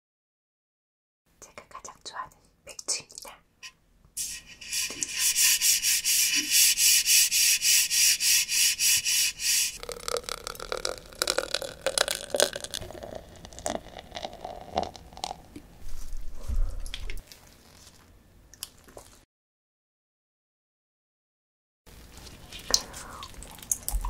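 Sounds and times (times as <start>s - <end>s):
beer glugging into glass: 9.8s - 15.5s.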